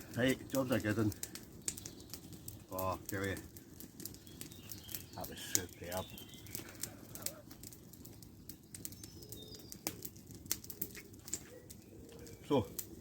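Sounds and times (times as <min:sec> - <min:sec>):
faint sharp crackles: 0:00.0 - 0:13.0
pigeon cooing: 0:10.6 - 0:13.0.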